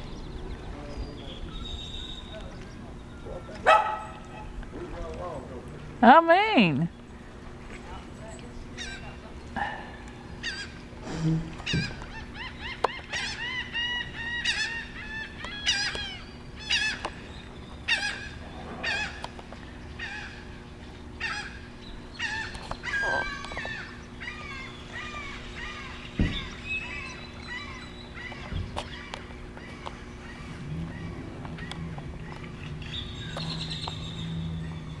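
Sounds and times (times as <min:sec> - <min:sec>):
birds calling: 0:00.0 - 0:35.0.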